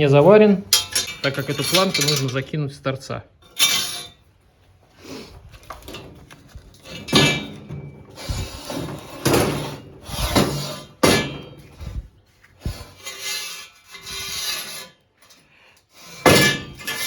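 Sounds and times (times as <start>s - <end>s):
metal scraping: 0.1s - 2.5s, 3.4s - 4.4s, 5.1s - 17.0s
metallic clanks with ringing: 0.7s - 2.4s.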